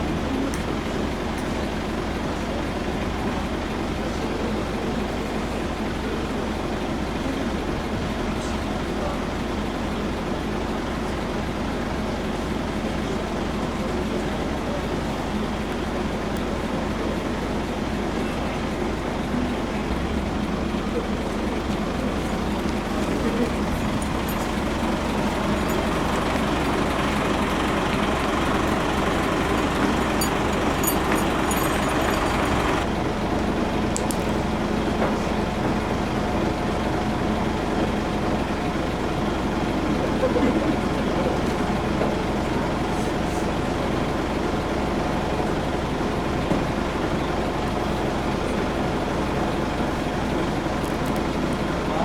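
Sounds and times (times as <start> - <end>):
truck engine idling: 0.0 - 52.0
engine hissing: 21.2 - 32.9.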